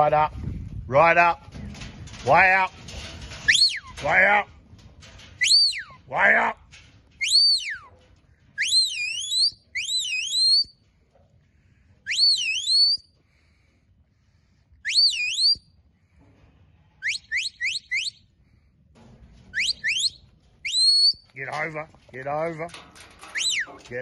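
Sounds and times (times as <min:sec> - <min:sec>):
sliding whistle commands: 0:03.4 - 0:04.0, 0:05.4 - 0:06.0, 0:07.2 - 0:07.9, 0:08.6 - 0:10.8, 0:12.1 - 0:13.1, 0:14.8 - 0:15.6, 0:17.0 - 0:18.2, 0:19.5 - 0:21.3, 0:23.2 - 0:23.8.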